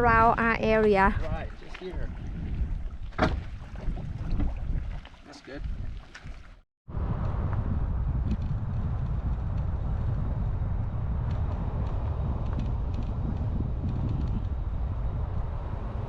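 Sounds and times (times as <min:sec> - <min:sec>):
vehicle rumbling in motion: 0:06.9 - 0:16.0.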